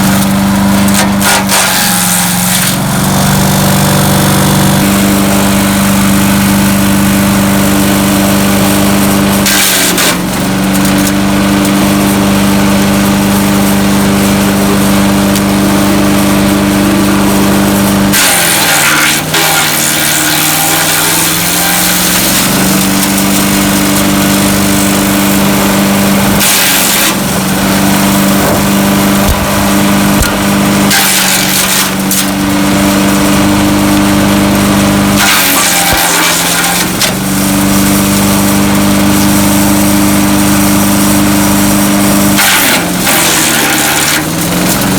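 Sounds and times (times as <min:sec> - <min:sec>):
wood chipper engine running: 0:00.0 - 0:44.9
branches being chipped: 0:00.6 - 0:02.8, 0:18.0 - 0:34.4, 0:35.1 - 0:40.0, 0:42.2 - 0:44.9.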